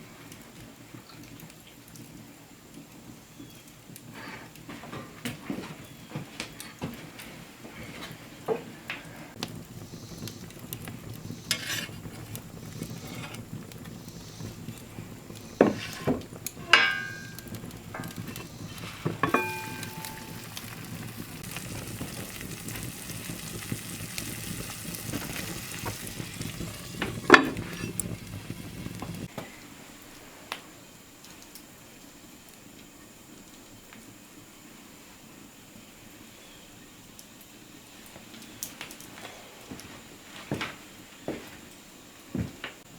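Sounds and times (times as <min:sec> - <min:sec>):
food sizzling: 0:07.7 - 0:29.4
metal utensils clinking on cookware: 0:15.6 - 0:20.9, 0:26.9 - 0:28.1.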